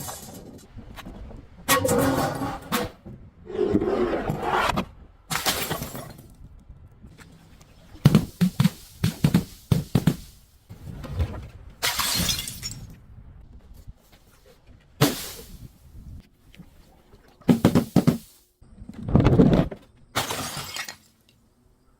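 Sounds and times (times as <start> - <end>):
glass bottles shattering: 0.0 - 0.6, 5.3 - 6.3, 11.8 - 12.9, 20.2 - 21.2.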